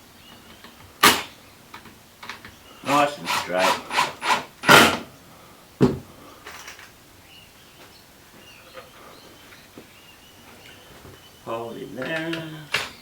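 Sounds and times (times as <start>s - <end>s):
faint bird chirps: 7.2s - 13.0s.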